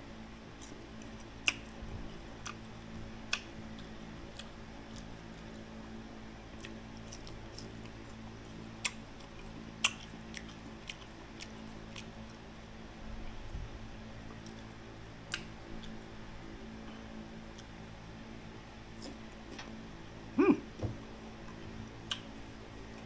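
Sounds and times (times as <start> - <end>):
crunchy mango chewing: 0.4 - 23.0.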